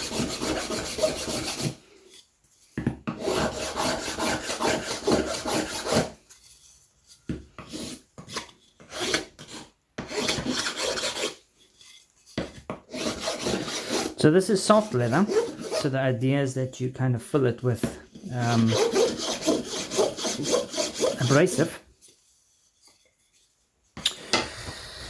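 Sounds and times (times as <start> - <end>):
hand rubbing abrasive strokes: 18.3 - 23.5.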